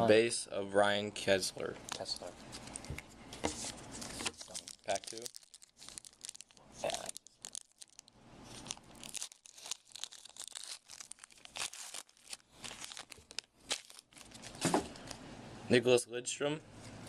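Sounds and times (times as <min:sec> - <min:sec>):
card pack wrapper tearing: 0:03.6 - 0:15.2.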